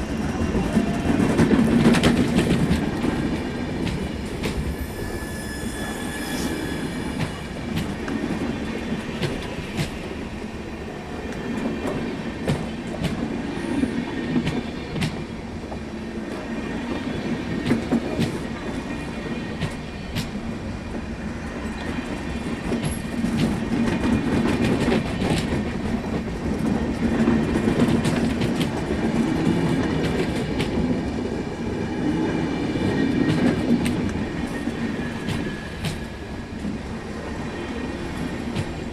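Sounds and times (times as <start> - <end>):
train rumbling on rails: 0.0 - 38.9
wheel squeal: 4.6 - 7.6.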